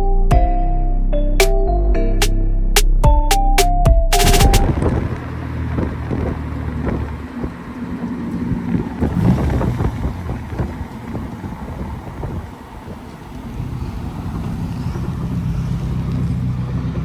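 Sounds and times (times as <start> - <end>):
vehicle engine running: 4.2 - 17.0
wind on microphone: 4.3 - 16.0.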